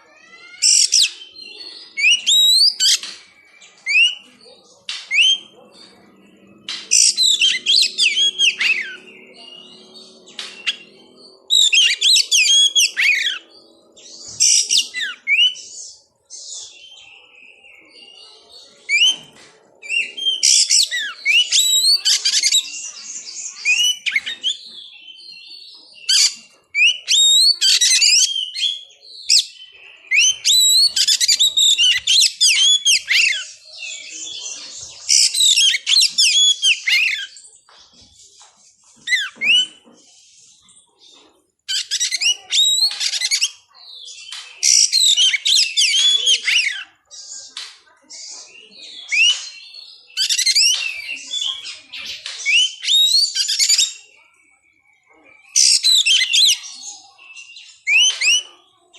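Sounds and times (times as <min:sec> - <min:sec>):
songbird whistling phrases: 0:00.0 - 0:04.3, 0:23.5 - 0:37.3, 0:41.7 - 0:46.9, 0:48.5 - 0:58.6.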